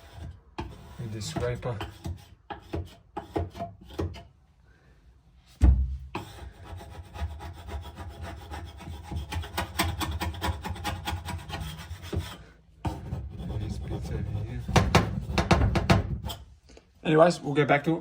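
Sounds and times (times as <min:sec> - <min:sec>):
hand scraper rasping on wood: 0:00.0 - 0:04.3, 0:06.2 - 0:16.4
heavy knock: 0:05.6 - 0:06.2, 0:14.7 - 0:16.3.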